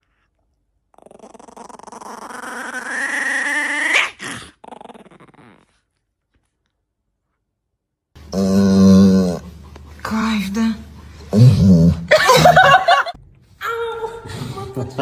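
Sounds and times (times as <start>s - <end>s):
dog growling: 0.9s - 5.9s, 8.2s - 9.9s, 10.9s - 12.8s.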